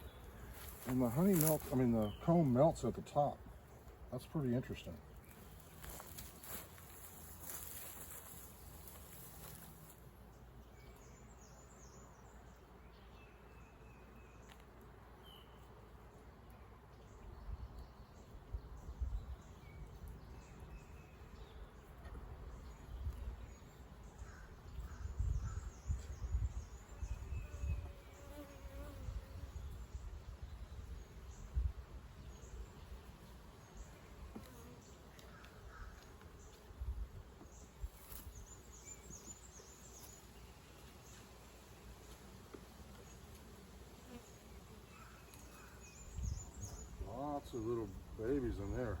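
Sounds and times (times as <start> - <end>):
honeybees buzzing: 0.0 - 16.9, 26.2 - 31.5, 32.1 - 49.0.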